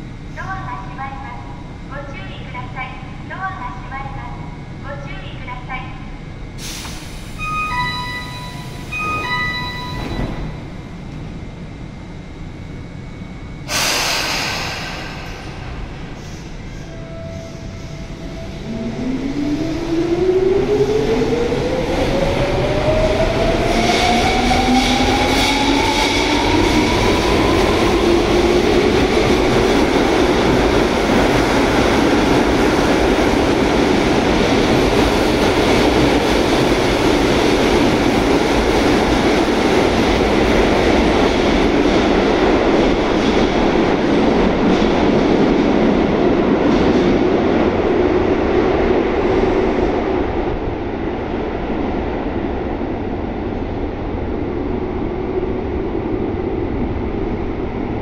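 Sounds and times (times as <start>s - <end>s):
train wheels rumbling on rails: 13.6s - 58.0s.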